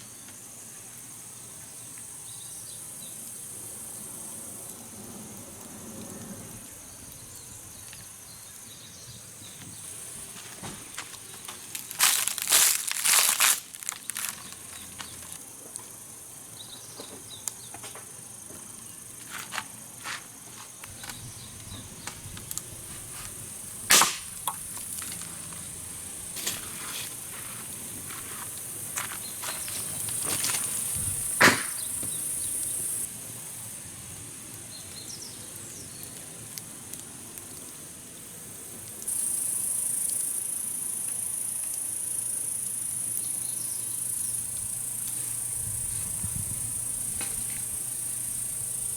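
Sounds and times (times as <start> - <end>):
insects chirring: 0.0 - 48.9
sharp pops and clicks: 20.8 - 25.6, 28.4 - 32.3.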